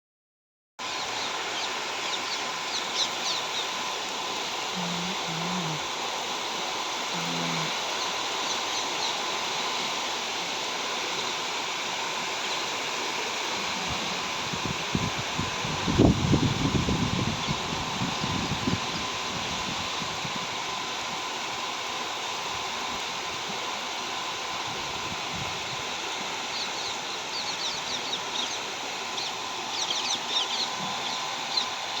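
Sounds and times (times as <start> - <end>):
birds chirping: 0.8 - 4.1, 7.1 - 10.0, 25.6 - 32.0
rain hissing: 0.8 - 32.0
chicken low calls: 4.6 - 6.0, 7.0 - 9.2.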